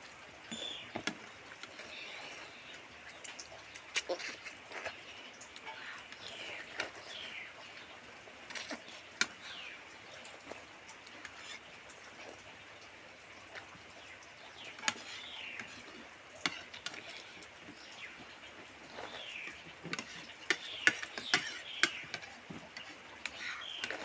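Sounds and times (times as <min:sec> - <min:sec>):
bird chirping: 0:00.5 - 0:01.0.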